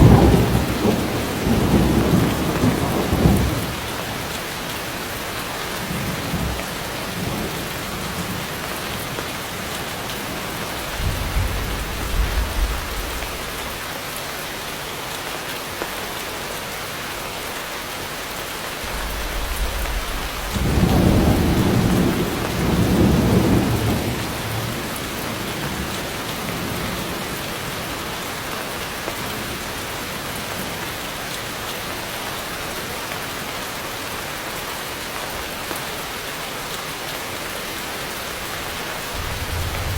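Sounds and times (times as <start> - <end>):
thunder rumbling: 0.0 - 4.2, 10.0 - 13.9, 18.8 - 25.9, 39.0 - 39.9
heavy rain falling: 0.0 - 39.9.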